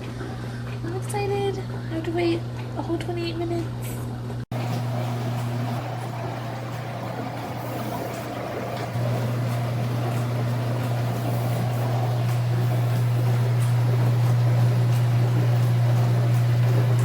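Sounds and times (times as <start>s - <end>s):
dishwasher pump hum: 4.5s - 17.0s
water spraying: 4.5s - 17.0s.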